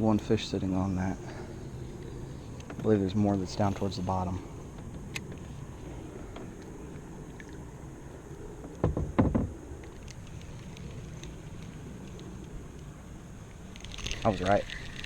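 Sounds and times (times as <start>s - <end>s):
knocks against a kayak: 8.7s - 9.6s.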